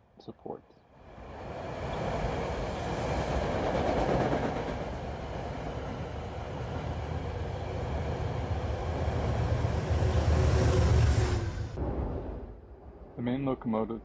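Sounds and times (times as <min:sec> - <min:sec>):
train wheels rumbling on rails: 0:01.7 - 0:11.9.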